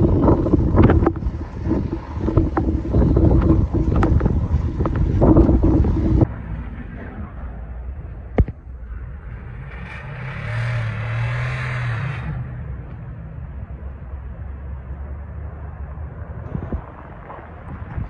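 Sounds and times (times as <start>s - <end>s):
wind rumble on microphone: 0.0s - 9.4s, 12.2s - 18.0s
car passing: 0.0s - 18.0s.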